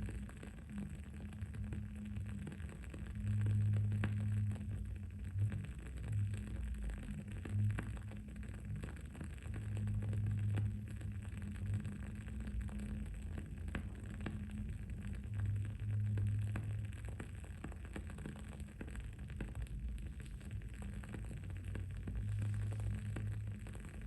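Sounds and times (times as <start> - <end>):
low background hum: 0.0 - 24.0
candle wick crackling: 12.7 - 24.0.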